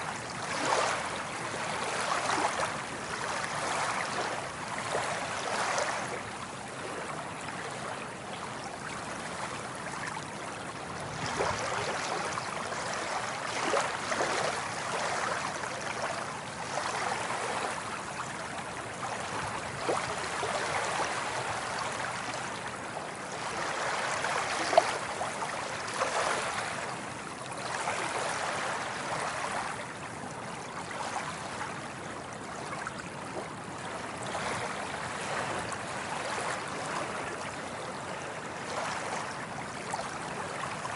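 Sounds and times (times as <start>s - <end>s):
water waves splashing: 0.0s - 6.1s, 11.2s - 30.0s.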